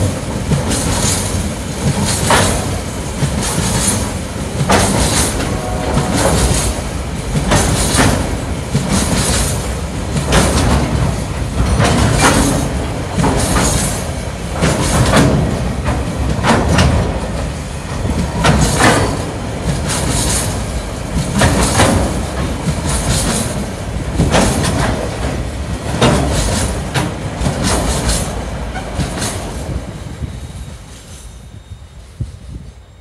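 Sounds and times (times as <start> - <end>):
train wheels clattering over rail joints: 0.0 - 31.3.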